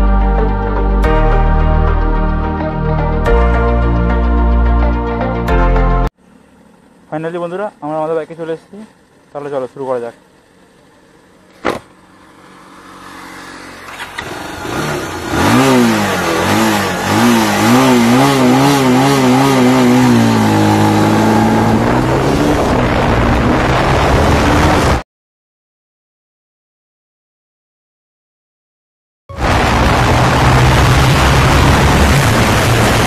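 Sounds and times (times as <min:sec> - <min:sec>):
motorcycle engine accelerating: 0:10.2 - 0:25.0, 0:29.3 - 0:33.0
rushing noise: 0:29.3 - 0:33.0.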